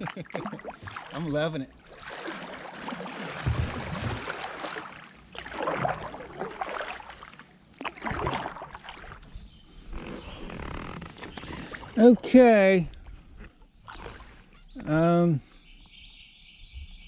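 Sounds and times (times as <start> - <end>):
water dripping off paddle: 0.0 - 9.2
kayak paddle strokes in water: 0.0 - 12.1.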